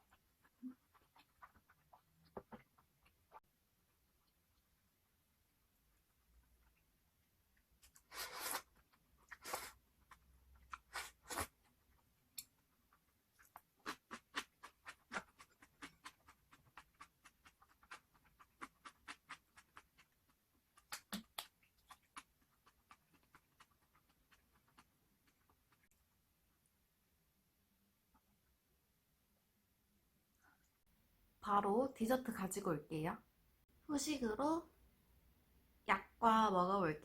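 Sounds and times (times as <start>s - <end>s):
chewing crispy chicken: 0.0s - 4.9s, 7.6s - 26.1s.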